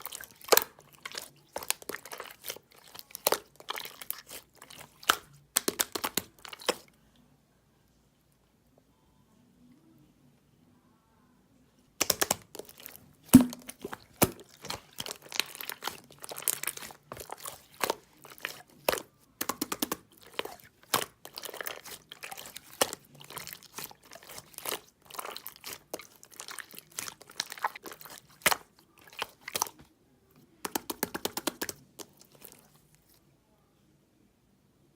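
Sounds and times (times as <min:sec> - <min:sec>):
slime clicking and popping: 0:05.0 - 0:06.8, 0:12.0 - 0:29.7, 0:30.7 - 0:32.6.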